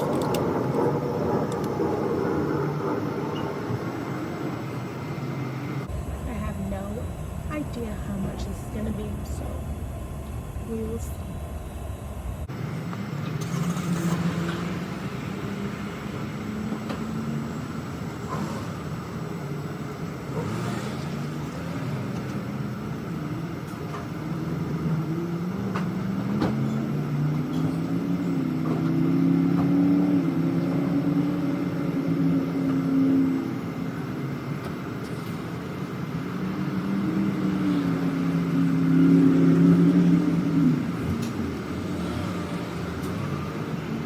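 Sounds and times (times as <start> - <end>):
scattered clicks: 0.0 - 2.0
vehicle engines running: 0.0 - 44.0.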